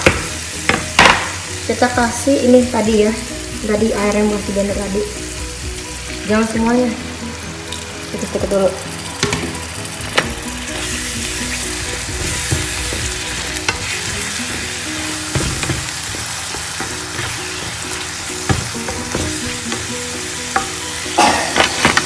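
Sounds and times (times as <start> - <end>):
chili paste sizzling in a pan: 0.0 - 22.0
spatula scraping a pan: 10.1 - 19.8.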